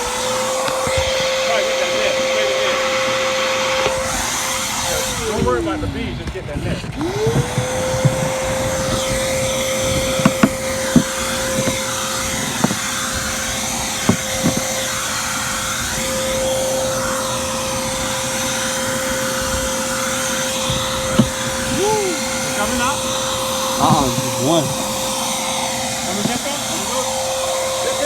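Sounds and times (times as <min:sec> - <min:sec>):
vacuum motor whine: 0:00.0 - 0:28.0
sharp clicks and knocks: 0:10.0 - 0:13.4, 0:14.0 - 0:15.0.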